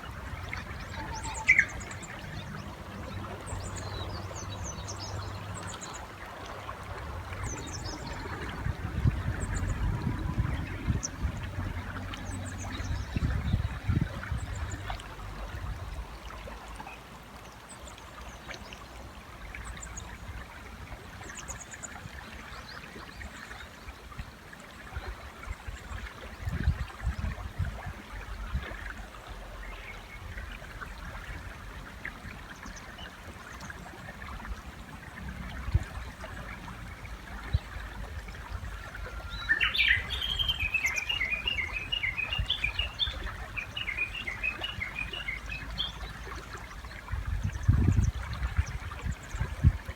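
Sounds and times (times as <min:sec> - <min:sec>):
river running: 0:00.0 - 0:49.9
bush warbler singing: 0:00.7 - 0:02.8, 0:39.2 - 0:46.2.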